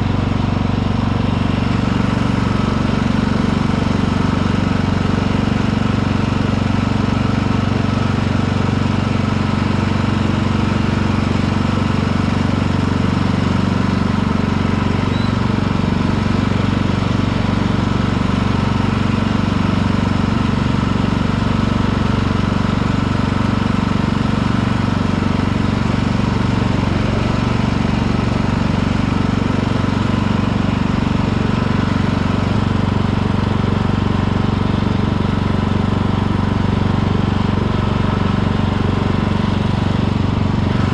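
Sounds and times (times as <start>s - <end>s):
lawn tractor engine running: 0.0s - 40.9s.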